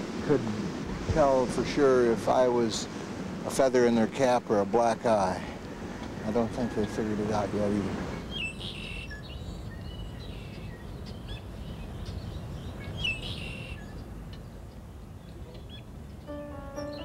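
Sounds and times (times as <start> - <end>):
low outdoor background noise: 0.0 - 17.0
small birds chirping: 8.3 - 17.0
piano-like music notes: 16.3 - 17.0.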